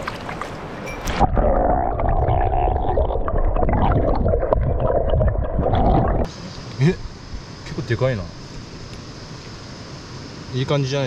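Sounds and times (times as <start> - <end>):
muffled stream water gurgling: 0.0 - 7.2.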